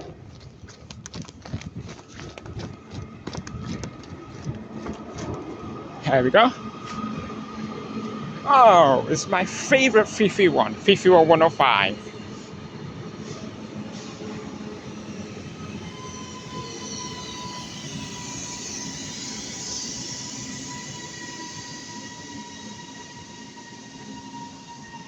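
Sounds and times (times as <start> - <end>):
train wheels rumbling on rail: 0.0 - 25.0
high whining tones: 3.4 - 25.0
high squeal: 5.6 - 25.0.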